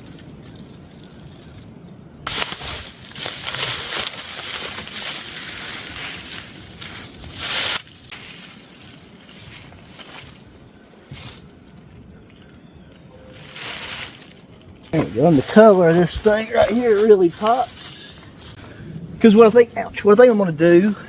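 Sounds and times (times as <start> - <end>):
plastic sheeting crinkling: 0.0 - 10.5, 13.1 - 18.6.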